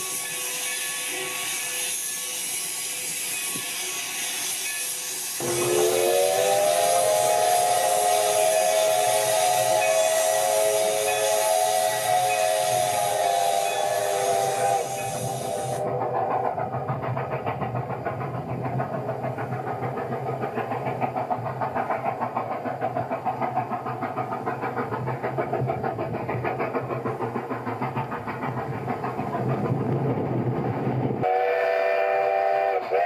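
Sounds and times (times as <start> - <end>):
train rumbling: 0.0 - 33.0
multi-tone train whistle: 5.4 - 15.9, 31.2 - 33.0.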